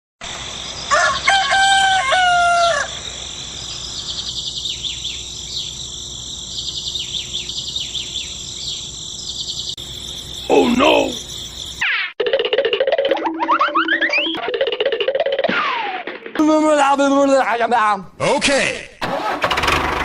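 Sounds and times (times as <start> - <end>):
insect-like hum: 0.2 - 11.8
rooster crowing: 0.9 - 3.2
high bird chirps: 3.6 - 11.9.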